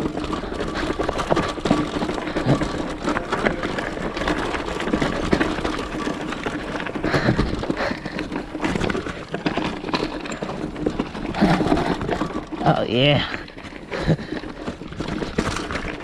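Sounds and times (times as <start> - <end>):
vehicle rattling over rocky trail: 0.0 - 16.0.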